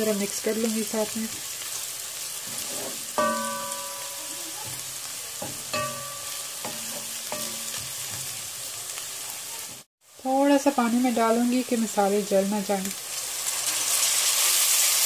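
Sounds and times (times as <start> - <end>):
onions sizzling in hot oil: 0.0 - 15.0
wooden spoon knocking pot: 3.2 - 8.3.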